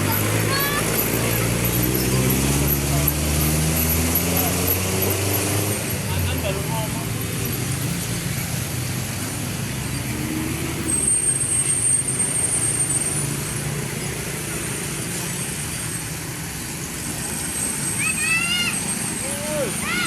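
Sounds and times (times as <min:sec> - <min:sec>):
vehicle running: 0:00.0 - 0:20.0.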